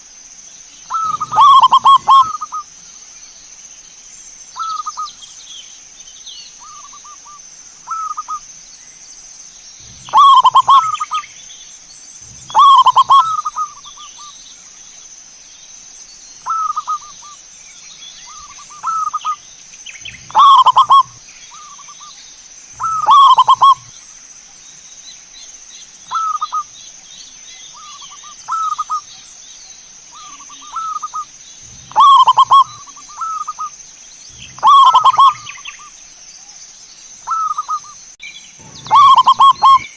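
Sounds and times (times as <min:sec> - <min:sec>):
dove cooing: 0:00.9 - 0:02.6, 0:09.8 - 0:11.2, 0:12.3 - 0:14.0, 0:16.5 - 0:17.2, 0:20.2 - 0:21.8, 0:22.8 - 0:23.9, 0:30.2 - 0:33.7, 0:34.4 - 0:35.6, 0:38.6 - 0:39.9.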